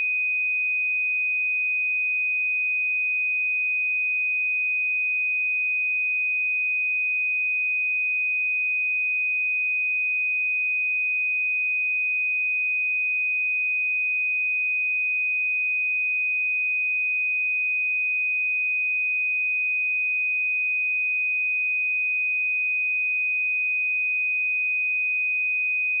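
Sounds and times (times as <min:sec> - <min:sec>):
sine wave test tone: 0:00.0 - 0:26.0.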